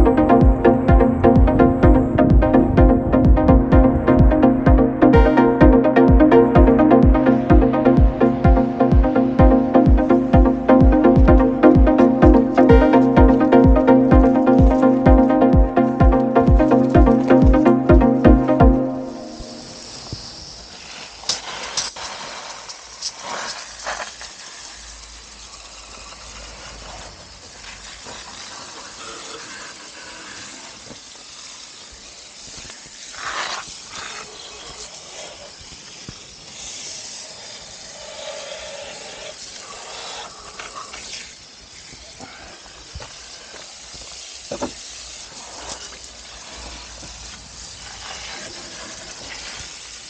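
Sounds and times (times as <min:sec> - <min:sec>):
water spraying hiss: 0:18.8 - 0:50.0.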